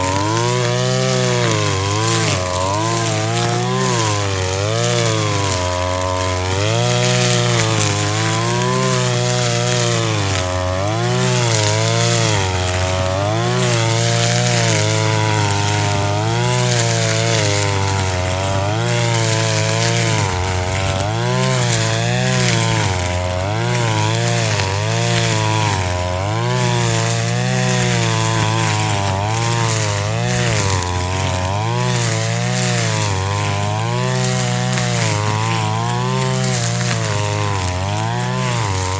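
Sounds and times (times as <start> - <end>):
brush cutter engine at full throttle: 0.0 - 38.9.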